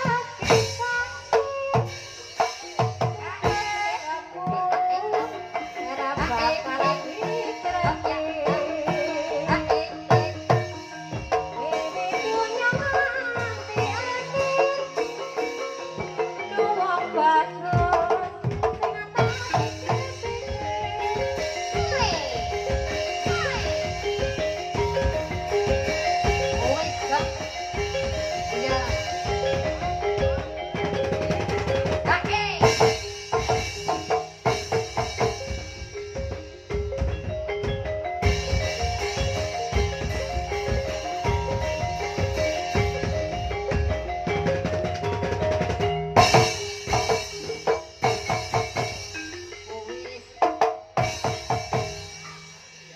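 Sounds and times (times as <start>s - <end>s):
gamelan metallophones: 0.0s - 52.9s
hand drum strokes: 17.8s - 49.1s.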